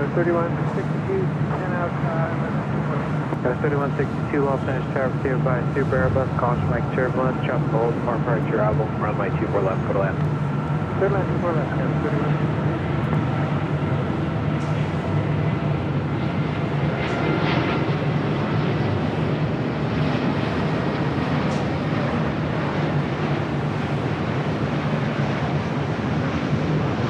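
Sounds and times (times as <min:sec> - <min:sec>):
jet engines humming: 0:00.0 - 0:27.0.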